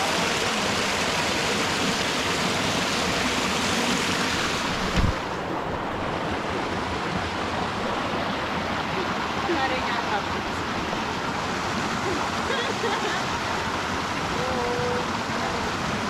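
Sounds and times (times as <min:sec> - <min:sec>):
flowing water rushing: 0:00.0 - 0:16.0
low thump: 0:04.6 - 0:05.5.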